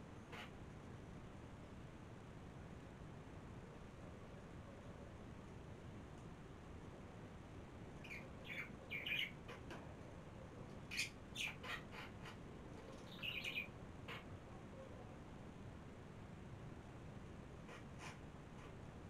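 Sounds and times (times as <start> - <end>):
faint room hiss: 0.0 - 19.0
birds chirping: 8.0 - 9.6, 10.9 - 12.4, 13.0 - 14.2.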